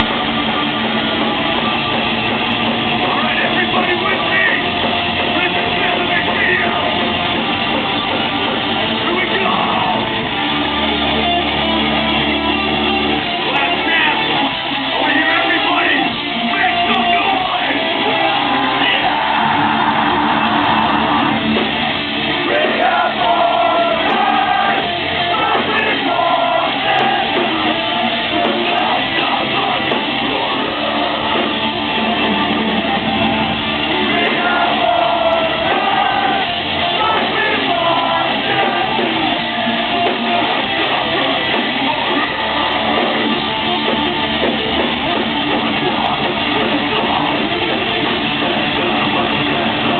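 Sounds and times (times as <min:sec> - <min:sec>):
live heavy metal band: 0:00.0 - 0:49.9
shouted screamed vocals: 0:16.9 - 0:33.1, 0:33.8 - 0:40.2.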